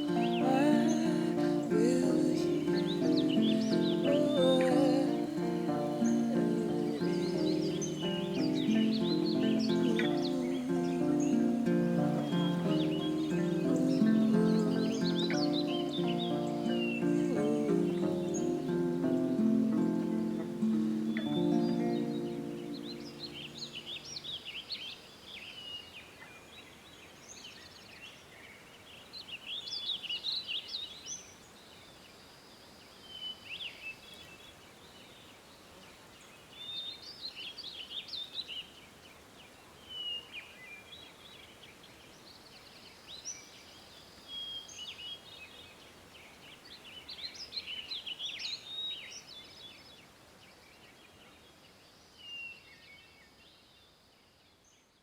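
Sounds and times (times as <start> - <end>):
birds chirping and warbling: 0.0 - 24.7
faint steady hiss: 0.0 - 55.0.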